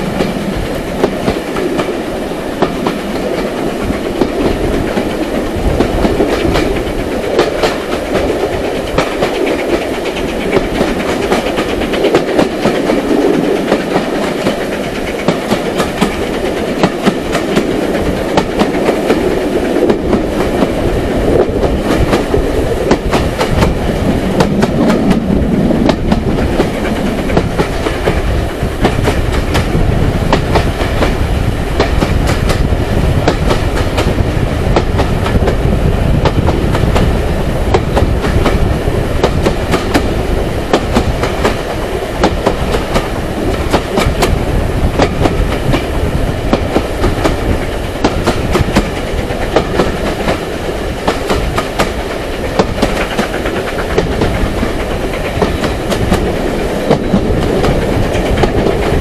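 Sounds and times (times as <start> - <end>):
railway carriage rumble: 0.0 - 59.0
wheels clicking over rail joints: 2.6 - 31.2, 31.8 - 59.0.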